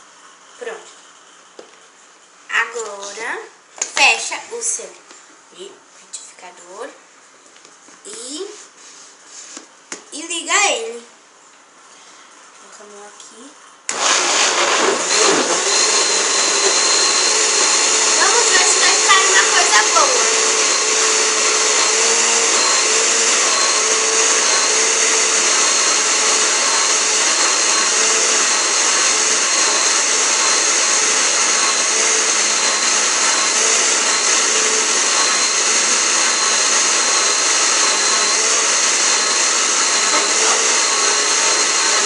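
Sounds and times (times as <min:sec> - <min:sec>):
blender motor whirring: 0:13.9 - 0:42.0.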